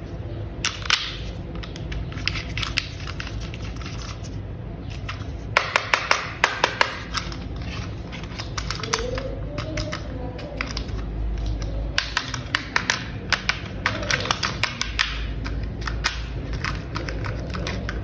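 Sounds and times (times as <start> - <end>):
plastic toy parts clicking together: 5.0 - 18.0.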